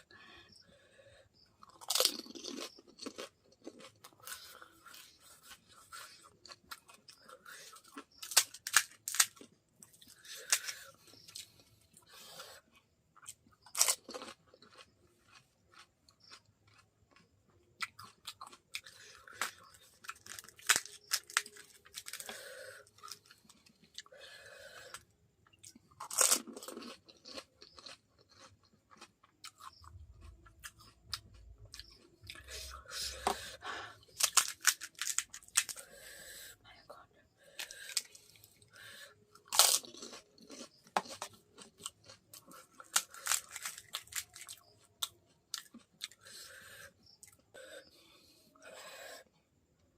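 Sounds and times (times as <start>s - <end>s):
crisp shells crunching in mouth: 1.6s - 5.2s, 6.0s - 11.4s, 13.2s - 23.6s, 25.6s - 33.3s, 34.0s - 35.8s, 39.3s - 46.2s.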